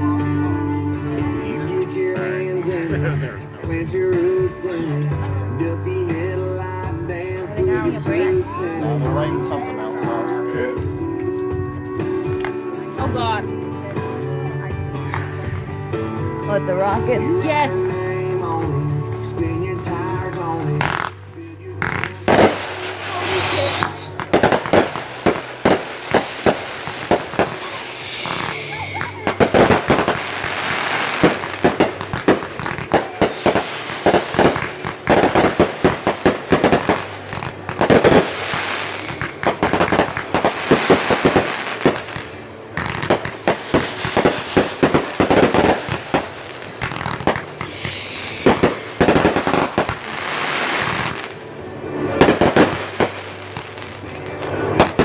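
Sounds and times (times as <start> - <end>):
fireworks bangs and crackling: 17.2 - 55.0
falling firework whistle: 22.8 - 24.2, 27.0 - 30.7, 37.9 - 40.1, 46.1 - 49.5.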